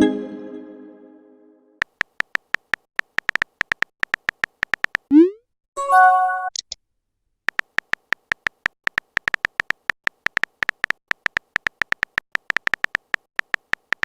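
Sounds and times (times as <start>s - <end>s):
smartphone keyboard typing clicks: 1.8s - 5.1s, 7.5s - 14.0s.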